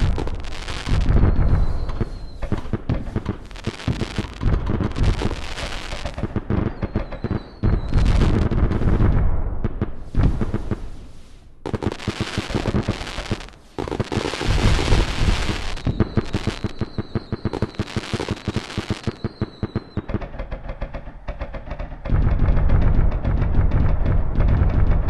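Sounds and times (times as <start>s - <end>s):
fireworks bursting with crackling: 0.0s - 25.0s
thin high whistle: 1.0s - 2.5s, 15.4s - 20.1s.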